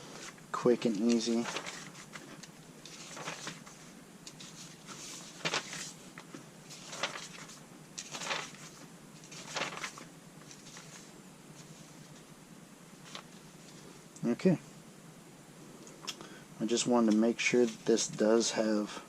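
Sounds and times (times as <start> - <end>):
paper pages flipping: 0.2 - 12.3, 13.0 - 13.8.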